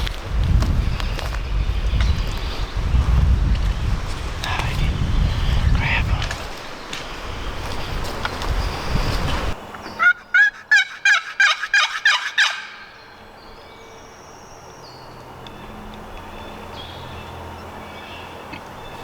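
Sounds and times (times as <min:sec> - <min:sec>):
wild turkey yelping: 0:09.8 - 0:13.2.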